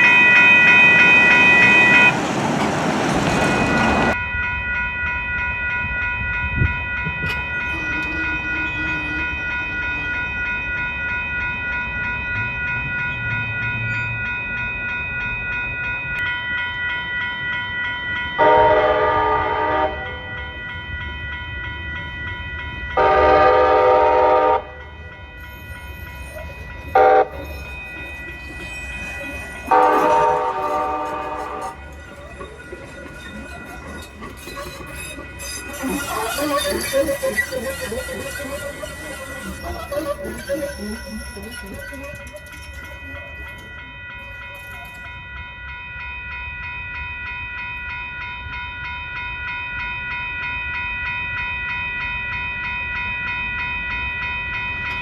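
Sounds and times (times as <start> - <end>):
crossing bell ringing: 0.0 - 55.0
train passing: 0.0 - 55.0
train horn blasts: 18.4 - 20.3, 23.0 - 24.9, 26.9 - 27.5, 29.7 - 31.9.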